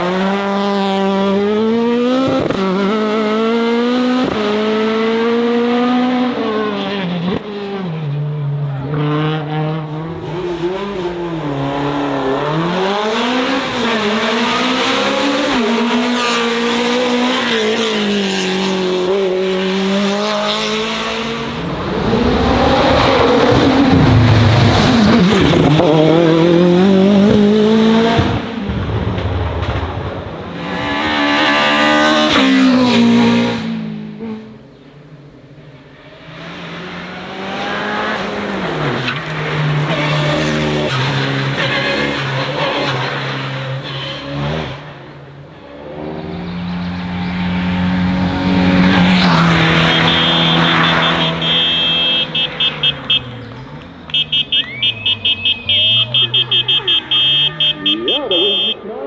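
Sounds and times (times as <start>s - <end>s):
race car engine revving: 0.0s - 35.4s, 36.0s - 58.8s
high-pitched electronic beeps: 49.8s - 53.3s, 54.1s - 58.8s.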